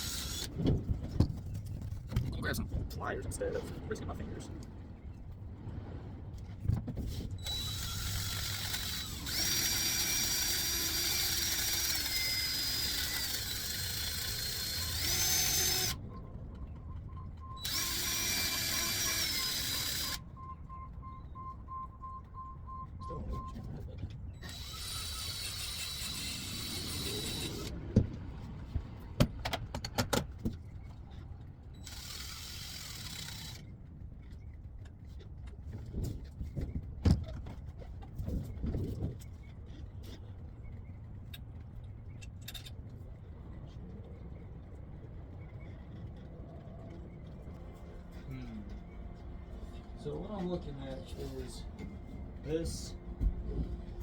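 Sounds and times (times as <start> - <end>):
power drill wire wheel whine: 0.0 - 0.6, 7.4 - 16.0, 17.6 - 20.2, 24.4 - 27.8, 31.8 - 33.7, 47.2 - 54.0.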